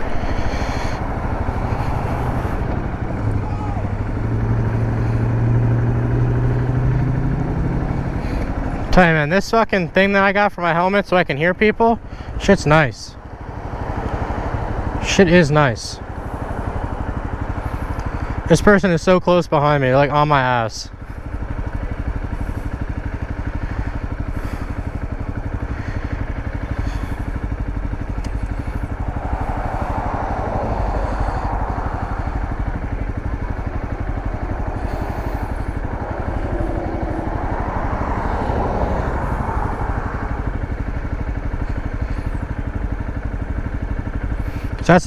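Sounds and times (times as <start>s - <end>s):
rushing noise: 0.0s - 5.4s, 24.0s - 41.2s
dirt bike engine running: 0.0s - 45.0s.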